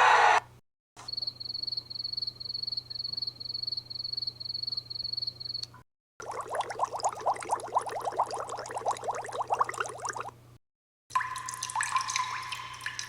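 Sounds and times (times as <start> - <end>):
cricket chirping: 1.0 - 5.8.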